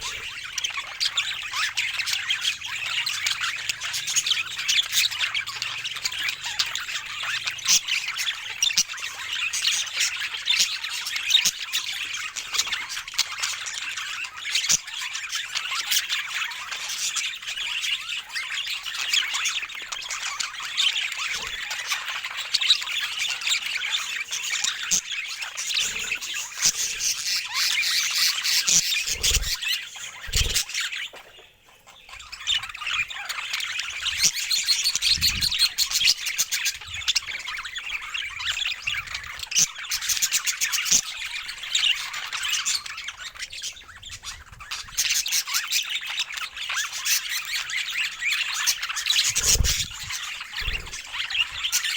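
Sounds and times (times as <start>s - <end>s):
budgerigars chattering: 0.0s - 51.9s.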